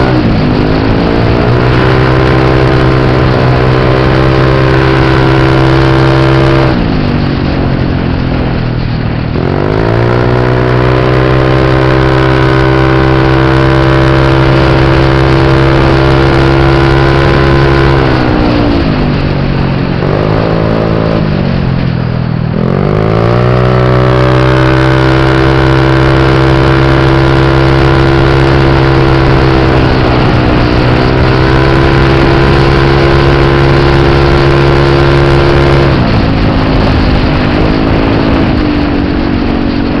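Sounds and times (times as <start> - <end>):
motorbike engine revving: 0.0 - 40.0.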